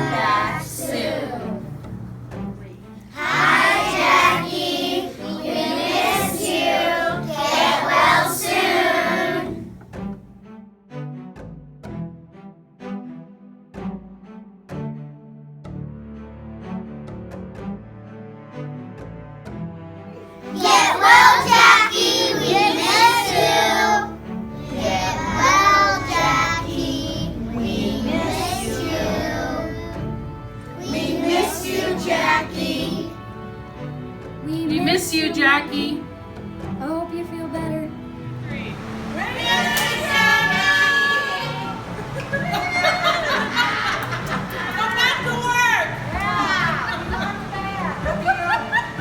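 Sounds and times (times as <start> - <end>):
children singing together: 0.0 - 2.0, 3.0 - 9.8, 20.4 - 34.2
instrumental accompaniment: 0.0 - 12.5, 19.3 - 49.0.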